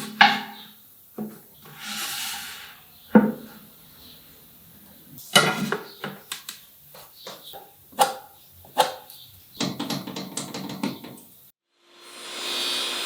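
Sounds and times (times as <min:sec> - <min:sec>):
wooden clicks and knocks: 0:09.6 - 0:11.3.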